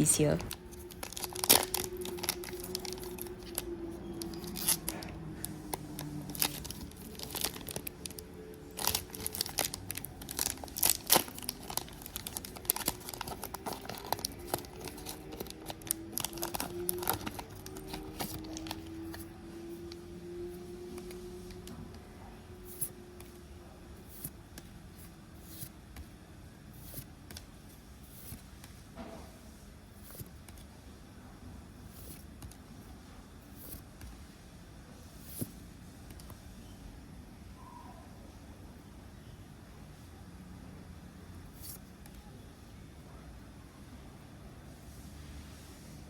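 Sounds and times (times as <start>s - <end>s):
foil pack tearing and crinkling: 0.8s - 3.2s, 6.2s - 18.9s
cards being handled: 8.8s - 19.3s.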